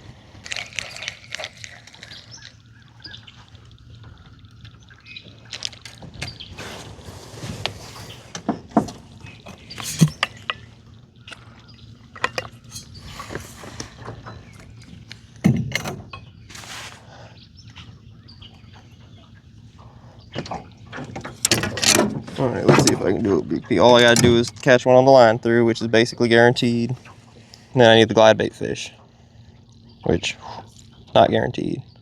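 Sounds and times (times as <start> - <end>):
low steady hum: 0.0 - 32.0
clicks and knocks of gear: 7.6 - 11.5, 20.4 - 23.0.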